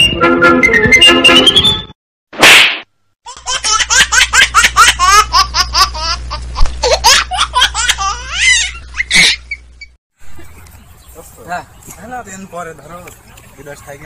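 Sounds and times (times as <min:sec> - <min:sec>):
laughter in quick bursts: 0:06.8 - 0:09.7.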